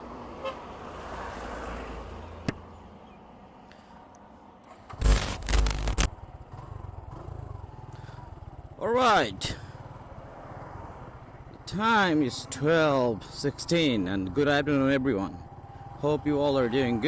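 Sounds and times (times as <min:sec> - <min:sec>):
loud scraping burst: 0:04.9 - 0:06.1
motorcycle engine idling: 0:06.2 - 0:11.7.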